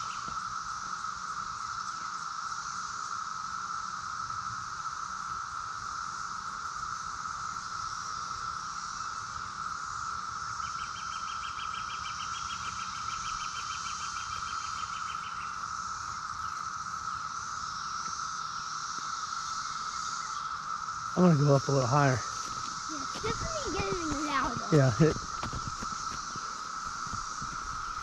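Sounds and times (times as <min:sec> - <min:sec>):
cicadas droning: 0:00.0 - 0:28.0
rapid pulsing insect call: 0:00.0 - 0:28.0.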